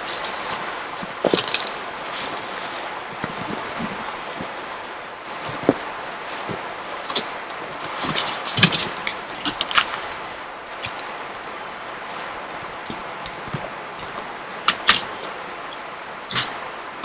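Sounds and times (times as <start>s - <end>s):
clinking and rustling handling: 0.0s - 16.6s.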